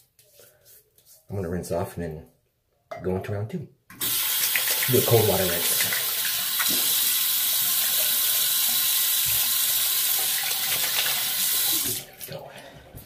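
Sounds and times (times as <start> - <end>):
tap water running into sink: 3.9 - 12.3.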